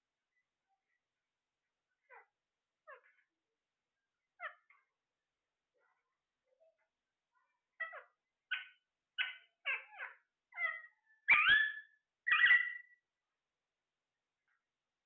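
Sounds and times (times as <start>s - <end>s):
parrot squawking: 4.4s - 4.8s, 7.8s - 13.0s.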